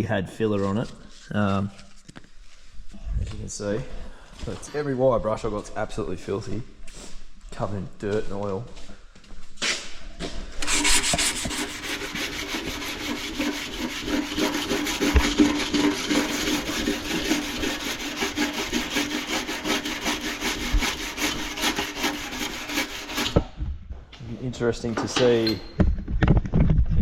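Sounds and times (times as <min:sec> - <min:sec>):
scrubbing metal with abrasive pad: 0:10.6 - 0:23.4.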